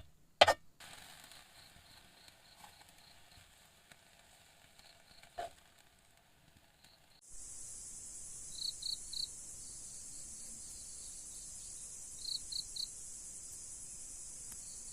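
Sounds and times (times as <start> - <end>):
insects trilling: 6.8 - 14.9.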